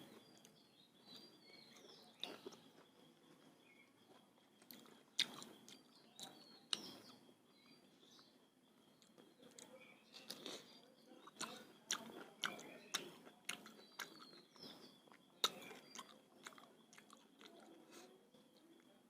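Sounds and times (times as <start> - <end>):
person chewing and lip-smacking: 4.6 - 7.1, 9.0 - 18.1.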